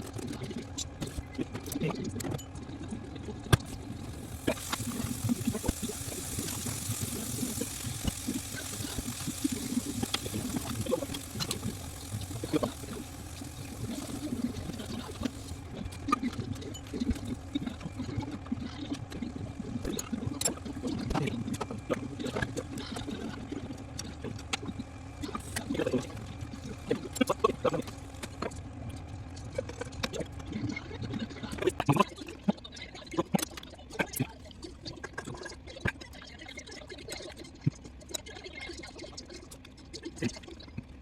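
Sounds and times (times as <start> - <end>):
cooking liquid hissing: 3.4 - 28.6.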